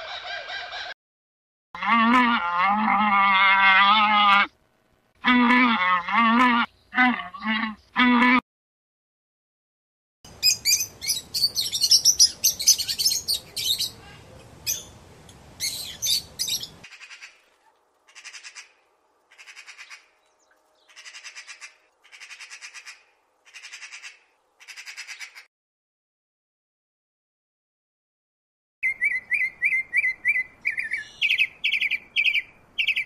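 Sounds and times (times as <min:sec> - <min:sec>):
birds squawking and chirping: 0:00.0 - 0:00.9, 0:10.3 - 0:17.4, 0:18.1 - 0:25.5, 0:28.8 - 0:33.0.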